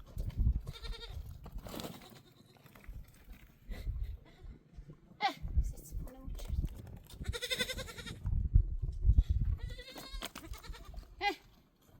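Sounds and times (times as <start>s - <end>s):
livestock bleating: 0.7s - 1.2s, 1.9s - 2.6s, 7.2s - 8.2s, 9.6s - 11.4s.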